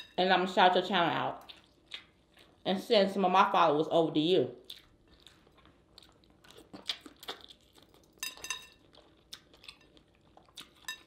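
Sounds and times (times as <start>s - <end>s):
chewing with wet clicks: 1.4s - 2.6s, 4.6s - 11.0s.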